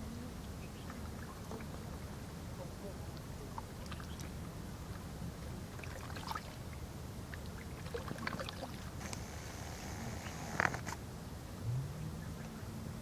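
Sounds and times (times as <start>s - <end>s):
water lapping and splashing: 3.5s - 10.7s
steady low rumble: 8.9s - 13.0s.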